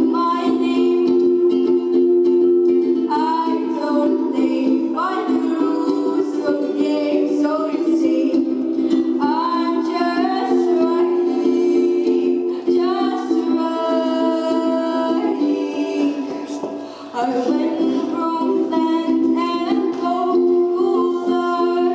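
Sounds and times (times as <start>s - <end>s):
girl singing: 0.0s - 21.9s.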